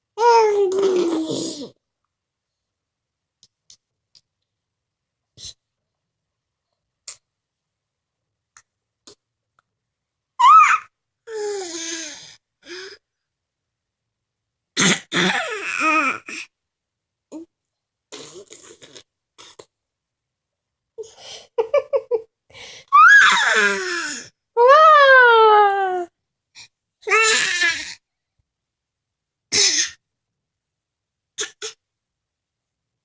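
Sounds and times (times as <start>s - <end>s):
baby squealing and babbling: 10.4s - 10.9s, 15.2s - 16.5s, 27.1s - 28.0s.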